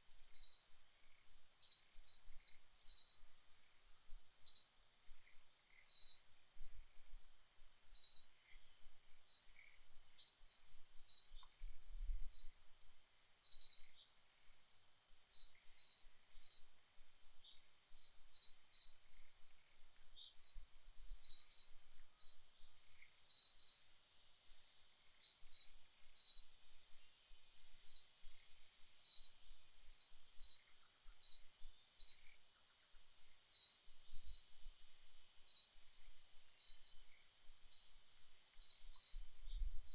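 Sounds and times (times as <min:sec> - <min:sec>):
faint high hiss: 0:00.0 - 0:39.9
bird chirping: 0:00.3 - 0:03.3, 0:04.0 - 0:06.3, 0:07.8 - 0:11.6, 0:12.2 - 0:12.6, 0:13.4 - 0:14.2, 0:15.3 - 0:16.8, 0:17.4 - 0:23.9, 0:25.1 - 0:32.8, 0:33.5 - 0:34.6, 0:35.4 - 0:35.8, 0:36.6 - 0:39.9.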